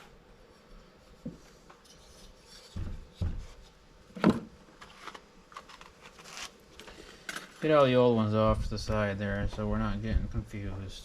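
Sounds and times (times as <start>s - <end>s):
dull thumps: 2.7s - 4.5s, 8.4s - 11.0s.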